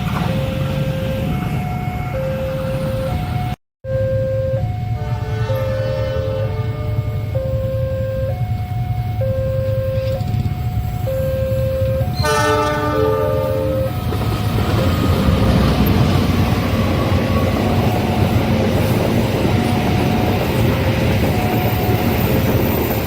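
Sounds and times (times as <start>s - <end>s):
train wheels rumbling on rails: 0.0s - 3.5s, 8.3s - 23.0s
level crossing signal chiming: 0.3s - 5.9s, 6.9s - 18.6s
locomotive horn blast: 4.2s - 8.2s, 11.3s - 14.1s.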